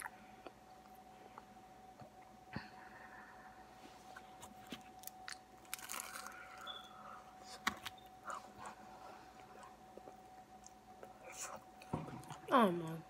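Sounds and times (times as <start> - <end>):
chewing: 4.2 - 12.5
crunchy bites: 4.4 - 6.7.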